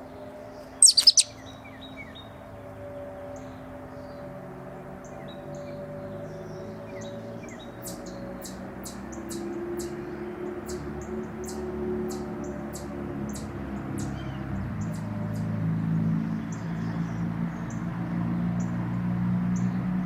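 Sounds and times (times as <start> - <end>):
faint bird chirps: 0.8 - 1.4
high-pitched bird chip calls: 0.8 - 1.4.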